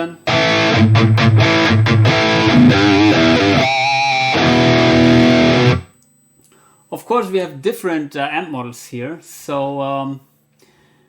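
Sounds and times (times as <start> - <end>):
distorted electric guitar: 0.0 - 5.9.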